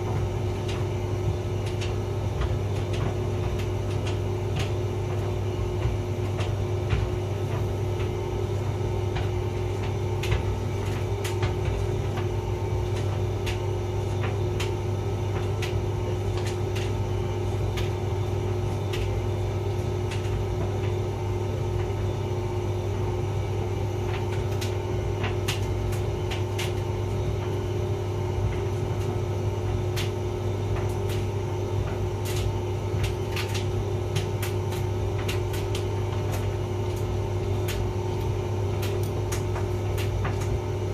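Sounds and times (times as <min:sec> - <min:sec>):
load tumbling clicks: 0:00.0 - 0:21.1
tumble dryer humming: 0:00.0 - 0:40.9.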